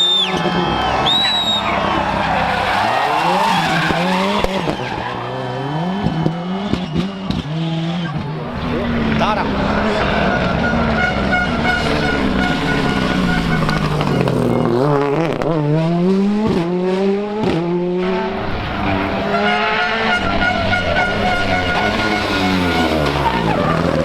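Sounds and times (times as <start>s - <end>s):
rally car engine accelerating: 0.0s - 24.0s.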